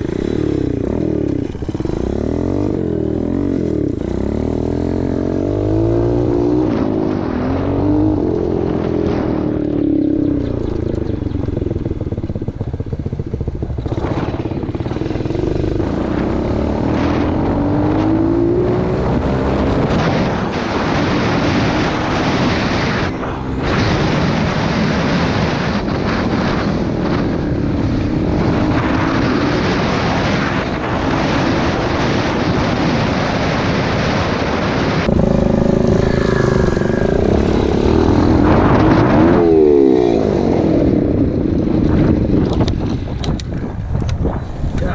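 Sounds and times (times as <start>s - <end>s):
pit bike engine revving: 0.0s - 27.2s, 34.6s - 41.4s
wind and road noise: 0.0s - 44.9s.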